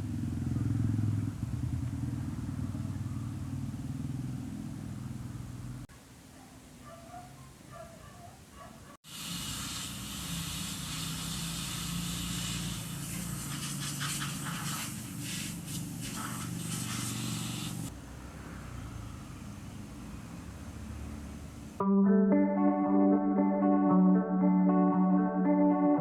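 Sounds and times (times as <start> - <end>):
motorcycle engine running: 0.0 - 5.8
hiss: 9.0 - 17.9.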